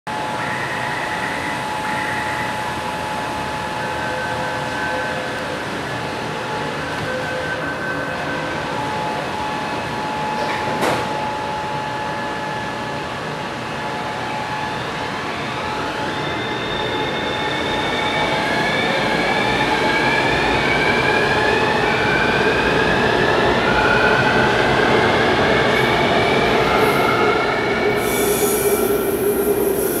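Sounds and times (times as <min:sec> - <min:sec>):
train drive whine rising: 0:25.0 - 0:30.0
high hiss: 0:28.0 - 0:30.0.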